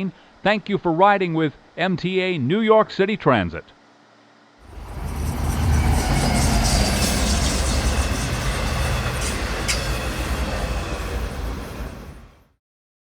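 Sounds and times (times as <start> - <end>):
subway train wheels rumbling: 4.6 - 12.6.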